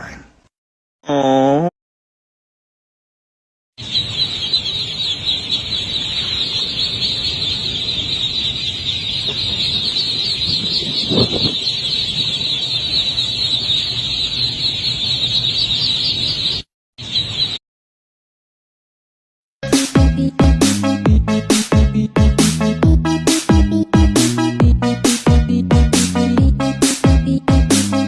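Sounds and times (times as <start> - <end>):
birds chirping: 3.8 - 17.6, 19.6 - 28.0.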